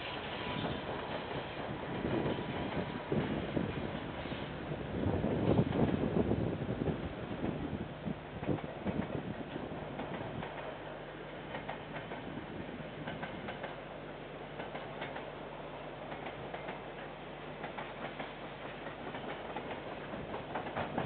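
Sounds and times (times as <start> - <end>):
freight train rumbling past: 0.0 - 21.0
wheels clicking over rail joints: 8.4 - 12.4, 13.0 - 13.9, 14.6 - 15.4, 16.1 - 21.0.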